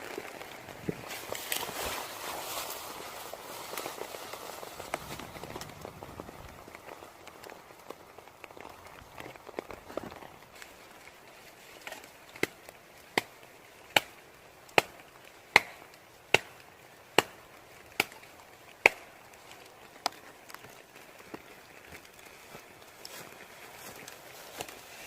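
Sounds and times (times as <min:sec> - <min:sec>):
blade chopping wood: 0:15.6 - 0:16.6, 0:17.2 - 0:17.4.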